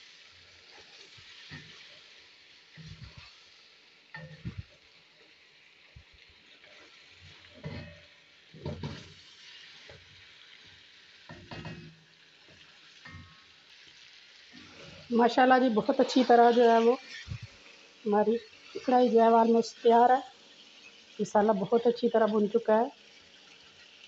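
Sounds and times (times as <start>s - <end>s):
food sizzling in a wok: 0.0s - 24.0s
spatula scraping metal wok: 6.5s - 10.0s.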